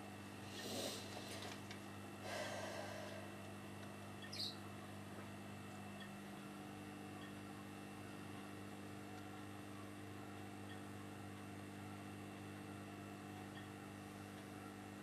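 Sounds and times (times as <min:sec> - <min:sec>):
faint steady hum: 0:00.0 - 0:15.0
small bird chirp: 0:04.2 - 0:04.7.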